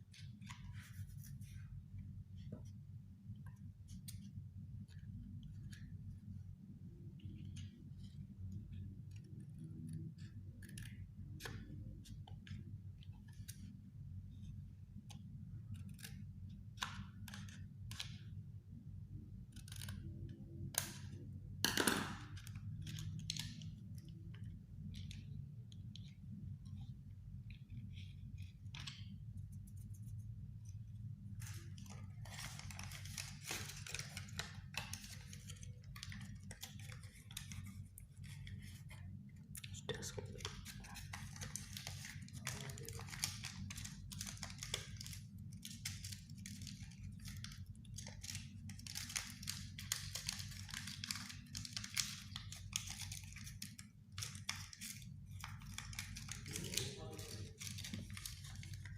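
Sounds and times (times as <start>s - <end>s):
low steady hum: 0.0s - 58.9s
paper rustling: 31.3s - 39.1s, 39.9s - 58.9s
crinkling: 31.3s - 58.9s.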